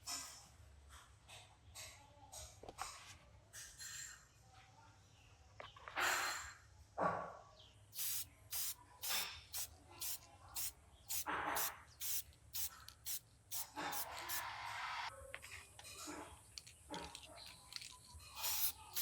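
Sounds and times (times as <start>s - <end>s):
aerosol spray can hissing: 8.0s - 14.9s, 18.4s - 19.0s.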